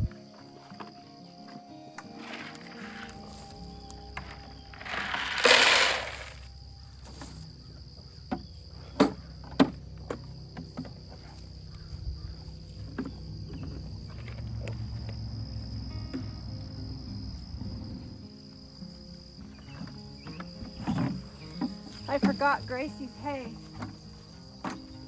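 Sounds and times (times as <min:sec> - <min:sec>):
insects trilling: 0:00.0 - 0:25.0.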